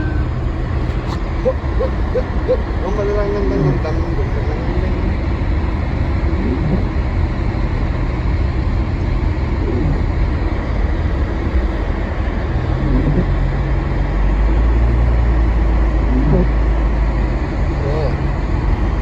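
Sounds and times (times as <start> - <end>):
car interior driving rumble: 0.0 - 19.0.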